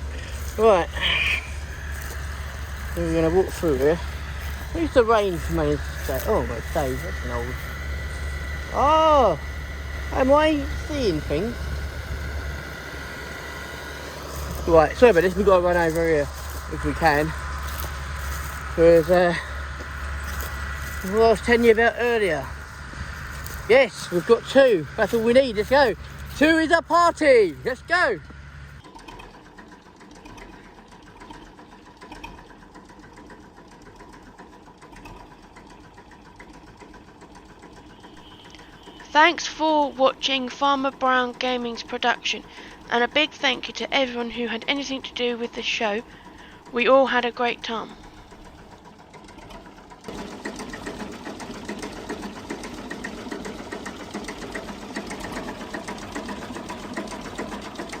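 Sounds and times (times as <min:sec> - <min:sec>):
engine running with clatter: 0:00.0 - 0:58.0.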